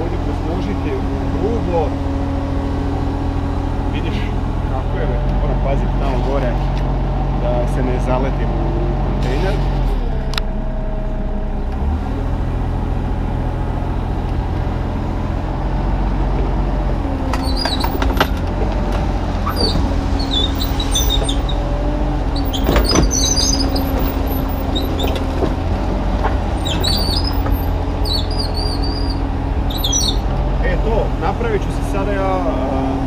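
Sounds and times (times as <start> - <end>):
excavator diesel engine running: 0.0 - 33.0
hydraulic whine: 17.1 - 30.5.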